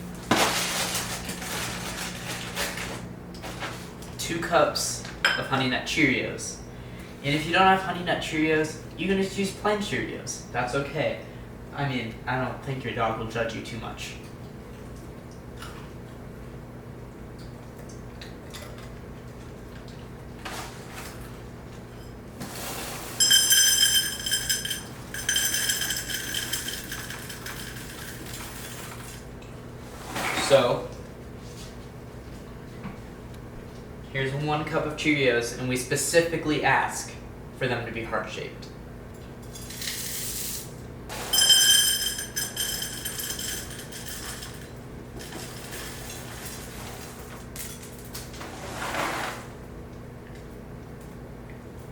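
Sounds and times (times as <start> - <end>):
bowl ringing: 23.2 - 28.8, 41.1 - 45.5
cereal pouring into a cup: 23.2 - 29.0.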